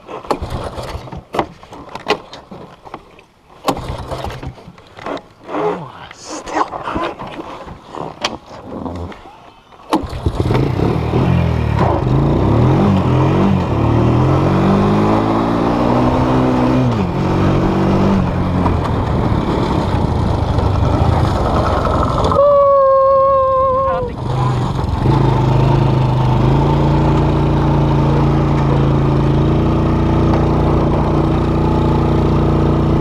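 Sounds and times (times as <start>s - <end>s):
vehicle engine revving: 10.0s - 22.4s, 23.8s - 33.0s.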